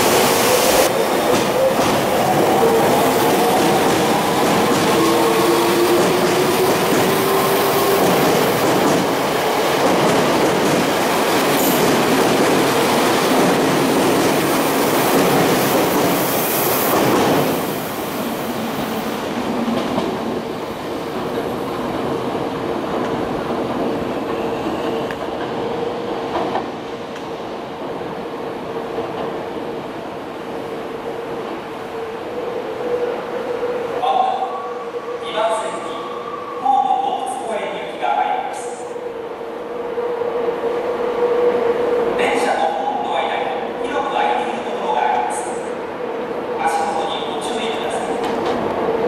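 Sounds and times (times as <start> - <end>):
electric train accelerating: 0.0 - 27.5
distant train approaching: 0.0 - 49.0.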